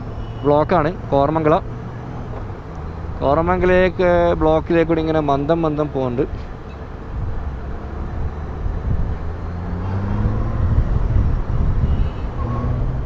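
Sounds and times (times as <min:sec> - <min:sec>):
low road and traffic rumble: 0:00.0 - 0:13.0
motorcycle engine at low speed: 0:07.2 - 0:12.3.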